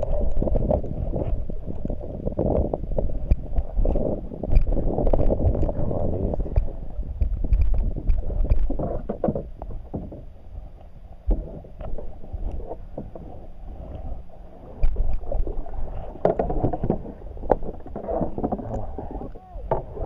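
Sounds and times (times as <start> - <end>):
wind buffeting the microphone: 0.0 - 10.3
water moving against a kayak hull: 0.0 - 20.0.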